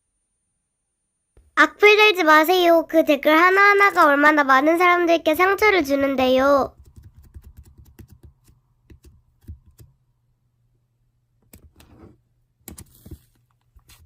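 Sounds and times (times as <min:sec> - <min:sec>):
typing on a keyboard: 0:06.7 - 0:09.9.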